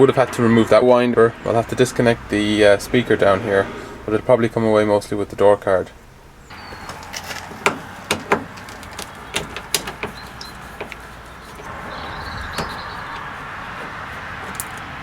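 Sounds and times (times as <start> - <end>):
sharp clicks and knocks: 6.5 - 11.7, 12.4 - 14.9.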